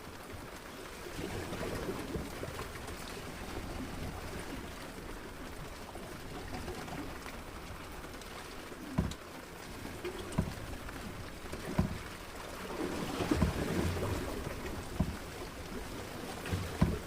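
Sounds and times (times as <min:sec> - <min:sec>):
water splashing against boat: 0:00.0 - 0:17.0.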